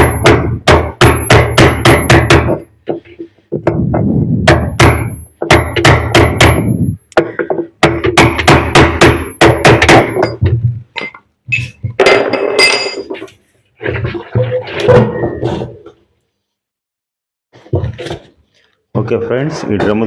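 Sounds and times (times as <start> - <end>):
hammer striking metal: 0.0 - 2.7, 4.5 - 10.4.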